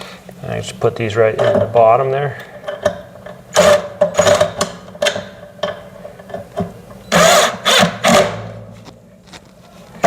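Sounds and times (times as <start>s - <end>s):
power drill driving screws: 7.1s - 8.4s.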